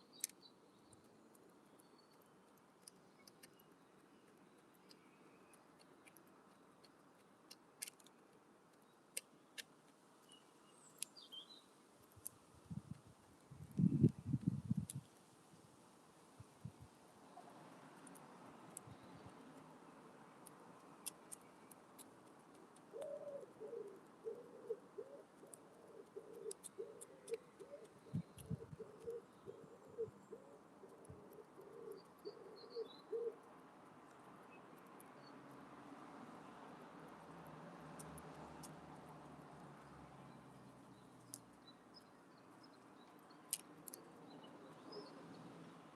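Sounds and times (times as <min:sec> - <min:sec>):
bird pecking at seed: 0:00.2 - 0:10.0, 0:20.4 - 0:32.5
pigeon cooing: 0:22.9 - 0:33.4
faint bird chirps: 0:23.0 - 0:33.4.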